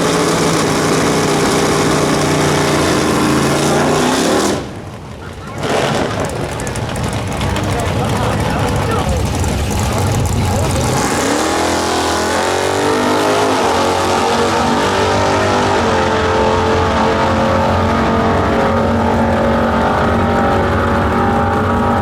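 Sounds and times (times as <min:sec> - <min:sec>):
car engine at full throttle: 0:00.0 - 0:22.0.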